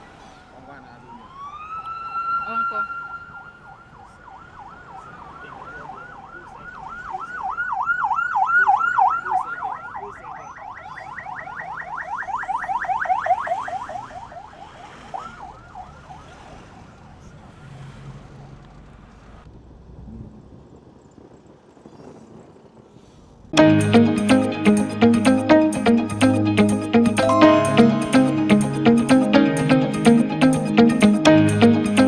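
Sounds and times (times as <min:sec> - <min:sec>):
escort siren yelping: 0:01.2 - 0:03.9.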